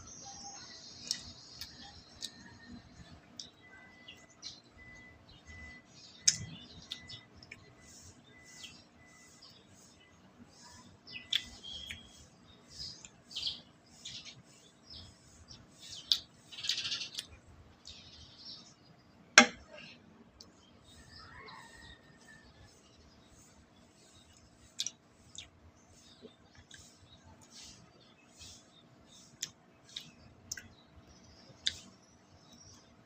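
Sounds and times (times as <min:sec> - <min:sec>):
chewing with wet mouth clicks: 0:01.0 - 0:03.6, 0:06.2 - 0:07.7, 0:11.2 - 0:12.2, 0:16.0 - 0:18.0, 0:24.2 - 0:25.6, 0:26.2 - 0:27.6, 0:29.2 - 0:30.8, 0:31.6 - 0:31.9
faint high beep: 0:03.6 - 0:09.5.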